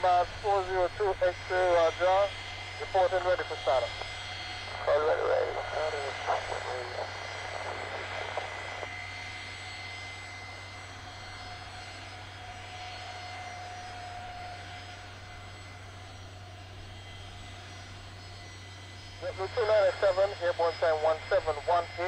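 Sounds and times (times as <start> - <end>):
jet engines at takeoff: 0.0 - 22.0.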